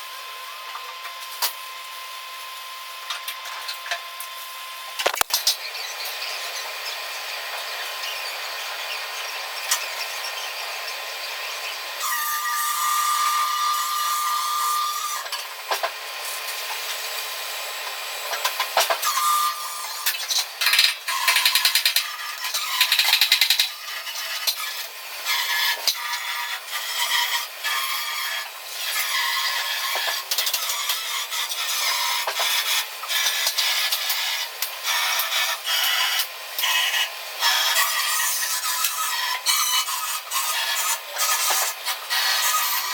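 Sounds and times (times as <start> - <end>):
tool with high whine: 0.0 - 42.9
sharp click: 5.0 - 5.4
power tool scraping steel: 18.1 - 42.9.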